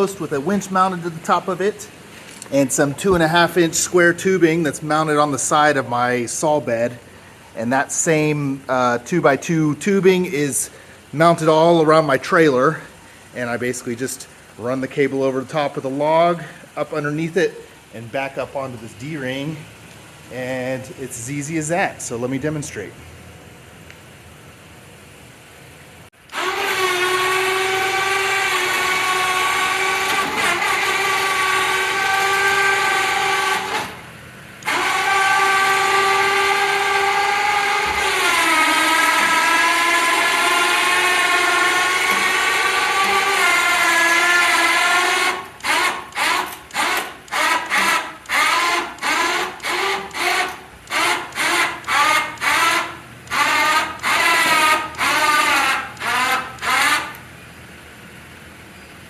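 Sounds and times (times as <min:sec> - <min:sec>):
electric winch whining: 0:00.0 - 0:09.1, 0:26.2 - 0:57.3.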